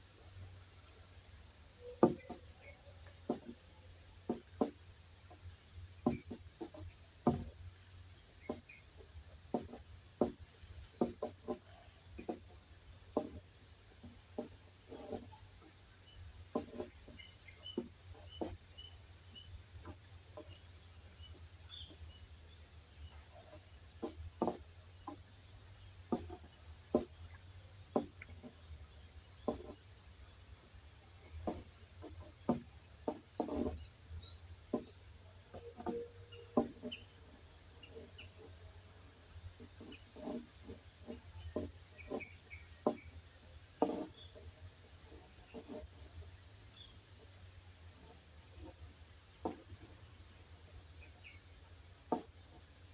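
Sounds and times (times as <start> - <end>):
high insect-like hiss: 0.0 - 52.9
soft taps and rustles: 2.0 - 52.9.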